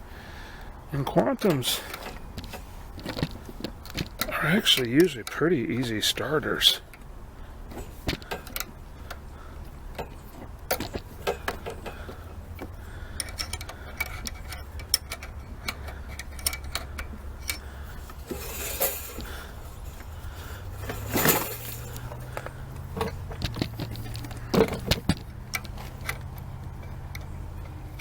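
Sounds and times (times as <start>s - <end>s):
steady low hum: 0.0s - 28.0s
light clicks and taps: 7.7s - 18.2s.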